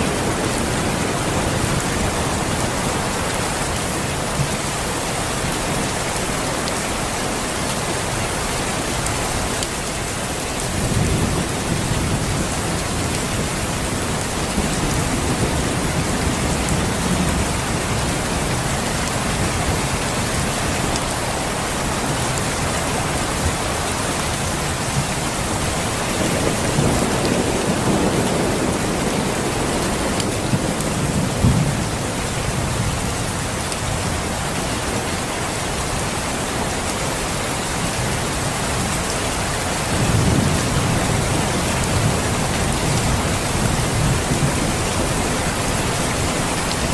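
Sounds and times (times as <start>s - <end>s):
steady rain: 0.0s - 46.9s
rolling thunder: 24.9s - 32.8s.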